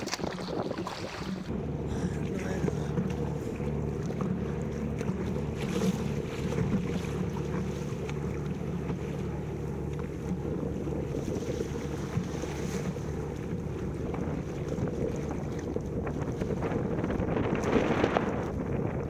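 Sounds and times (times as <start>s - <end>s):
water splashing and lapping: 0.0s - 19.0s
wind buffeting microphone: 0.0s - 19.0s.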